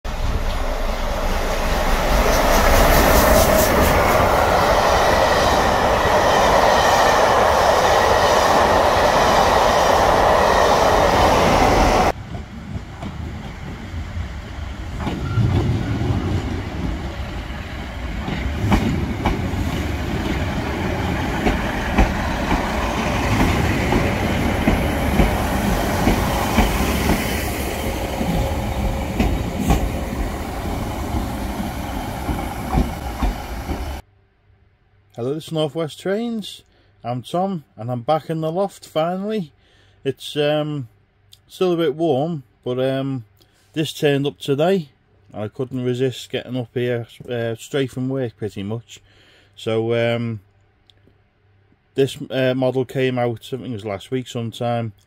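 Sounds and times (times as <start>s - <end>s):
diesel train rumbling past: 0.1s - 34.0s
steam locomotive passing: 0.1s - 34.0s
wheels clicking over rail joints: 18.2s - 27.3s.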